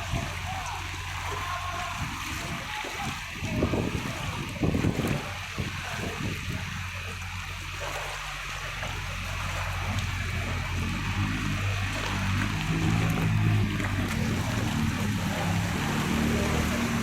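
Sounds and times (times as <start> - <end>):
heavy rain hissing: 0.0 - 17.0
low steady hum: 0.0 - 17.0
runoff water splashing: 0.0 - 17.0.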